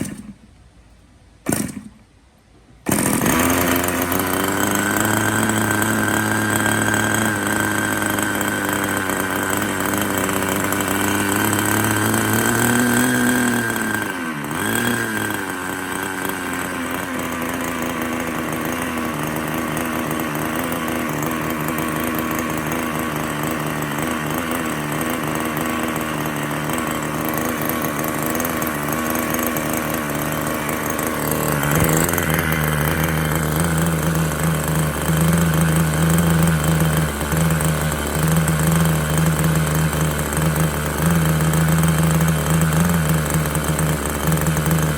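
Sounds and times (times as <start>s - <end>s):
small model engine running: 2.9s - 44.9s.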